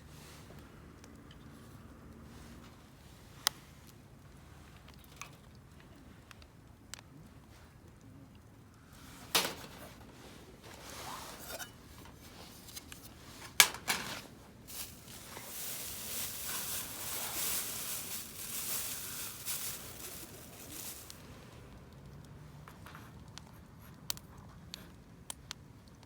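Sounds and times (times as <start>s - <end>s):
steady rustling: 8.9s - 21.7s.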